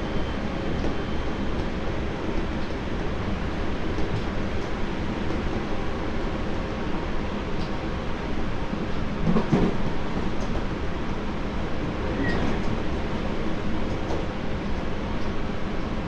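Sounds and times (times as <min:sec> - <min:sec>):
train wheels rumbling on rail: 0:00.0 - 0:16.0
faint squeak: 0:12.1 - 0:12.6.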